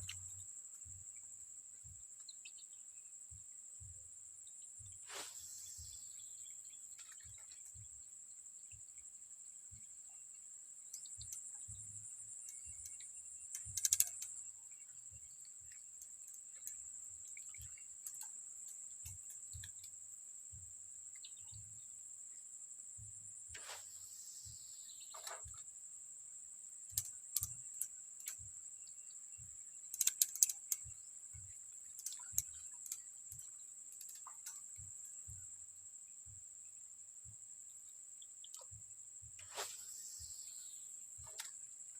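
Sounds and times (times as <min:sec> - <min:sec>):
small clicks and ticks: 0:00.0 - 0:01.4, 0:06.5 - 0:07.9, 0:08.7 - 0:20.2, 0:25.0 - 0:25.7, 0:26.7 - 0:35.6, 0:38.4 - 0:39.5, 0:41.2 - 0:41.9
insects droning: 0:00.0 - 0:41.9.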